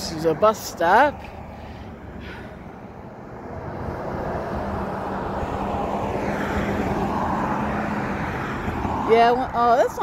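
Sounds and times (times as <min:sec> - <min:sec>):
loud engine passing close: 0:00.0 - 0:10.0.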